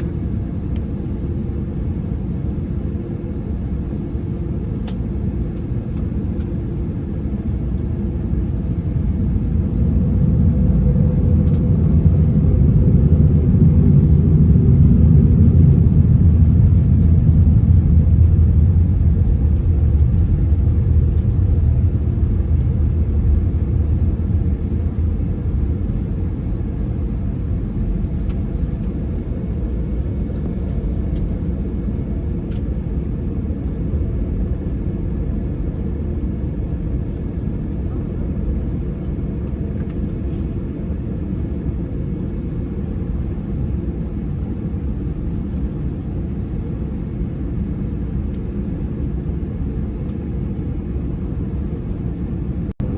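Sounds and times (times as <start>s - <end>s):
jet rumble inside cabin: 0.0s - 52.9s.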